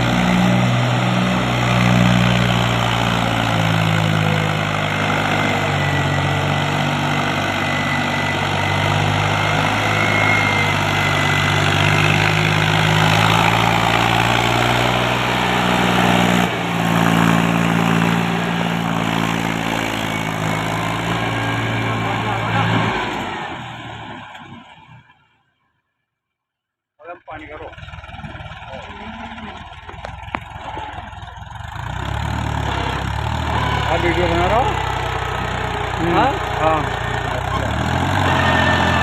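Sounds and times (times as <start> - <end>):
tractor diesel engine running: 0.0 - 24.7, 27.2 - 39.0.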